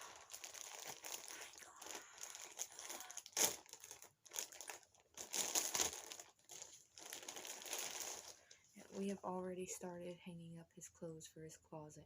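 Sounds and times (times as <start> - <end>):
packaging crinkling and rustling: 0.0 - 9.2.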